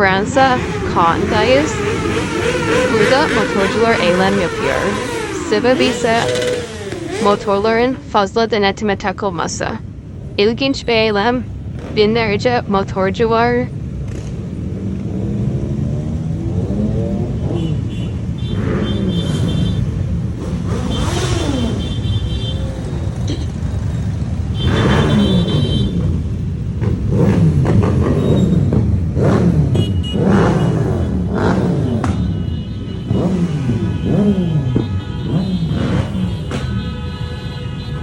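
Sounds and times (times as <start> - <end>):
motorcycles riding past revving: 0.0 - 8.0, 13.9 - 32.2, 33.0 - 36.6.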